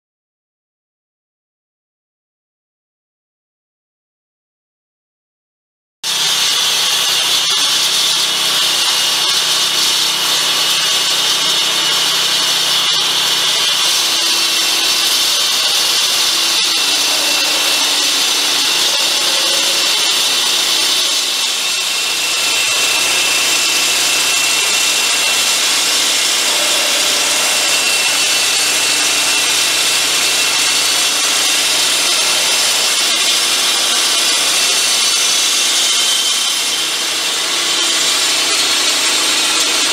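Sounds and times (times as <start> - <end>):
floor saw grinding asphalt: 6.1 - 39.9
high saw blade whine: 6.1 - 39.9
saw engine running: 6.4 - 39.9.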